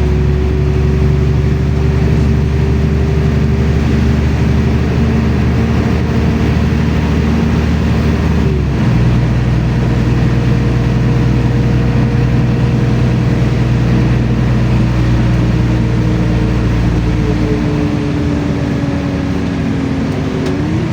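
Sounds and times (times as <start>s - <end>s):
bus engine humming and whining: 0.0s - 20.9s.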